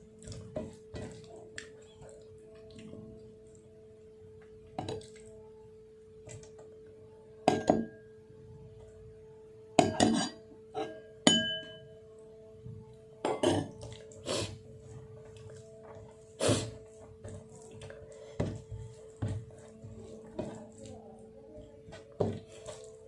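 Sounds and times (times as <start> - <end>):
metal dishes clinking: 9.8 - 11.8, 13.2 - 13.8.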